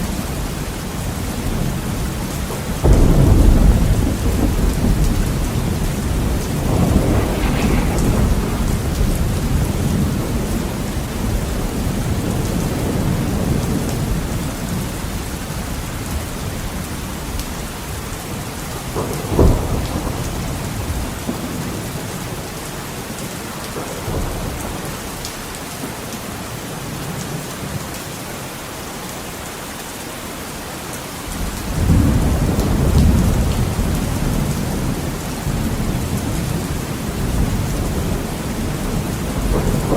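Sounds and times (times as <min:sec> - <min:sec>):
heavy rain on a window: 0:00.0 - 0:39.9
rolling thunder: 0:02.7 - 0:14.8, 0:18.8 - 0:22.4, 0:31.6 - 0:39.9
sharp thunderclap: 0:02.8 - 0:13.8, 0:31.7 - 0:39.9.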